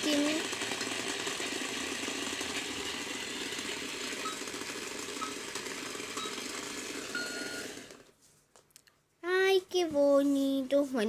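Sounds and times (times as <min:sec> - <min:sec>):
toy blender motor buzz: 0:00.0 - 0:08.1.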